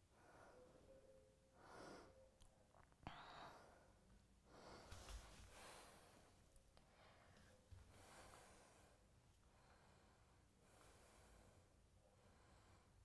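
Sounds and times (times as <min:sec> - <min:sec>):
faint slow breathing: 0:03.1 - 0:13.0.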